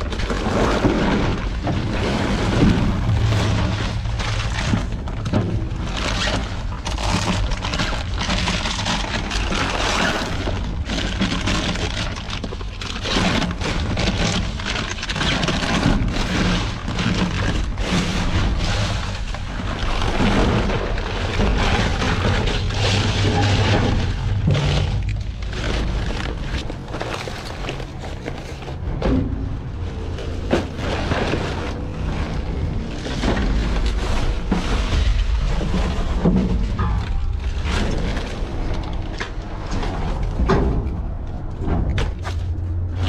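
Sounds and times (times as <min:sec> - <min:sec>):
steady low rumble: 0:00.8 - 0:11.6, 0:15.9 - 0:43.0
trash bags rustling and knocking: 0:20.2 - 0:29.4, 0:41.7 - 0:43.0.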